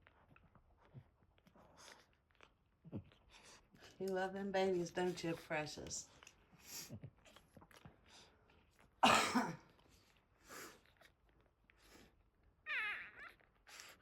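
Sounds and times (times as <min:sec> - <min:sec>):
loud cough-like burst of breath: 0:09.0 - 0:09.7
soft breathy huffs: 0:09.9 - 0:11.0.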